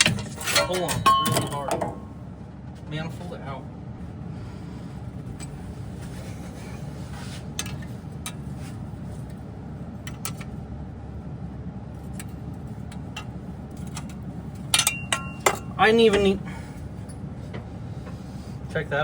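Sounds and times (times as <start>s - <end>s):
low background rumble: 0.0s - 19.0s
metal tools clicking and knocking: 12.1s - 16.4s.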